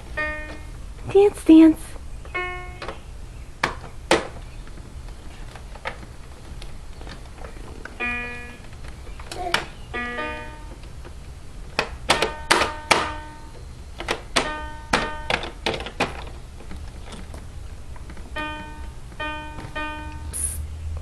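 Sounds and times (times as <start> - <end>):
electronic toy melody: 0.2 - 0.7, 2.4 - 2.9, 8.0 - 8.6, 9.9 - 10.8, 18.4 - 20.5
sharp knocks and thumps: 3.6 - 7.8, 11.7 - 13.3, 14.0 - 20.0.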